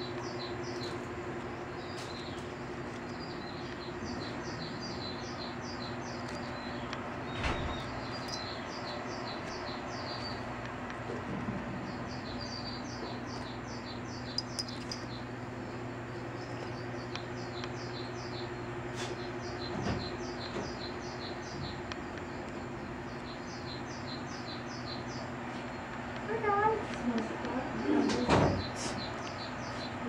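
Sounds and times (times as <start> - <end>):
high chirping: 3.1 - 10.5, 11.9 - 21.8.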